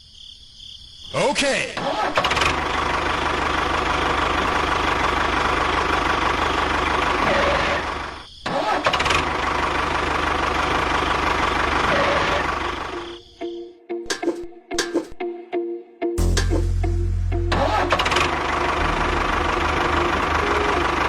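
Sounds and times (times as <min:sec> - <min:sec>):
small tractor engine running: 0:01.8 - 0:13.2, 0:17.5 - 0:21.0.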